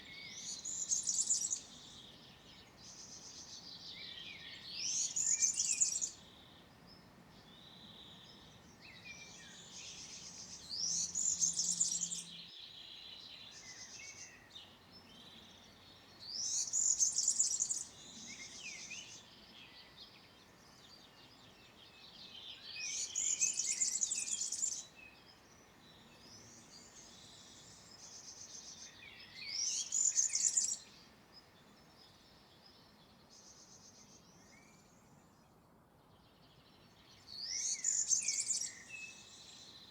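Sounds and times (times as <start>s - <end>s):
faint bird song: 0.0s - 39.9s
bird high rapid song: 0.2s - 6.4s, 7.7s - 12.8s, 16.2s - 20.0s, 21.0s - 25.1s, 26.1s - 31.1s, 37.0s - 39.9s.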